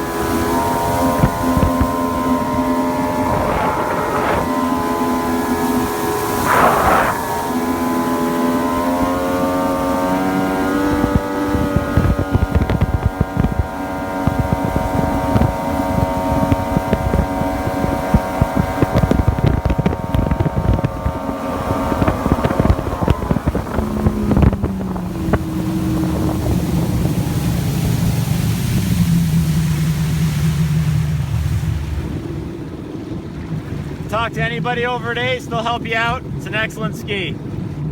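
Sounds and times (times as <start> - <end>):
wind on microphone: 0.0 - 36.5
jet ski engine revving: 0.0 - 37.9
sharp engine knocks: 1.1 - 2.2.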